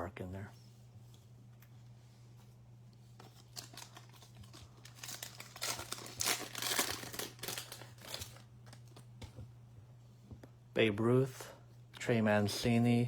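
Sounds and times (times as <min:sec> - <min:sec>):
plastic wrapper tearing and crinkling: 0:03.2 - 0:09.0.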